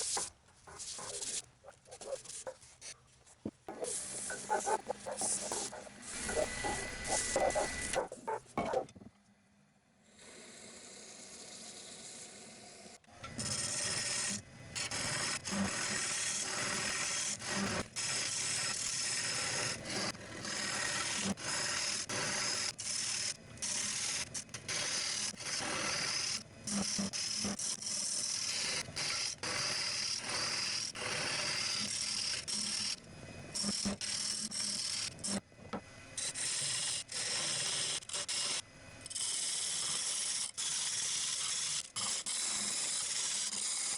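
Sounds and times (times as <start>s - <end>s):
sanding paste rubbing hiss: 0.0s - 2.9s.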